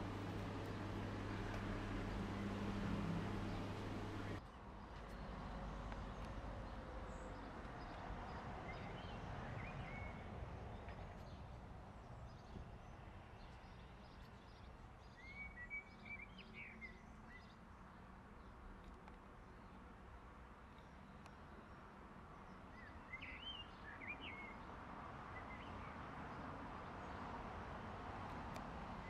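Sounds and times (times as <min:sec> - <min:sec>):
faint steady rumble: 0:00.0 - 0:04.4.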